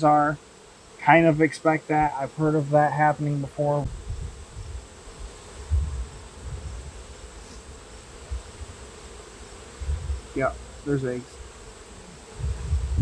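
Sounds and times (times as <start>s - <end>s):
honeybees buzzing: 0.0s - 13.0s
low microphone rumble: 3.8s - 7.1s, 12.3s - 13.0s.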